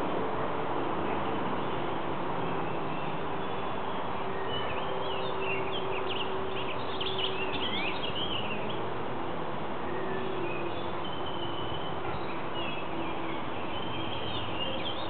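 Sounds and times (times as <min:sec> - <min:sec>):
bird chirps and trills: 0:02.7 - 0:08.8, 0:09.9 - 0:15.0.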